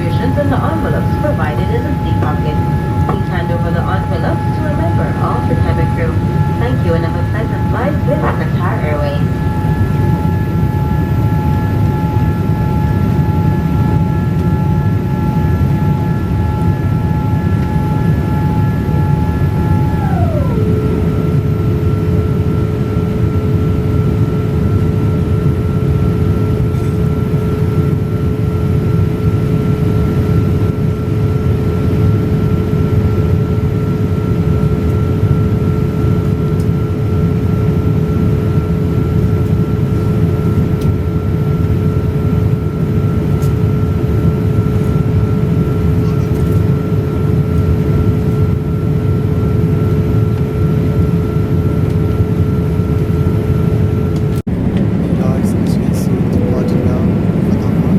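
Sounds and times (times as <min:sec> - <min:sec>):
steady two-pitch whine: 0:00.0 - 0:24.2, 0:54.5 - 0:57.9
engine and air rumble: 0:54.2 - 0:57.9.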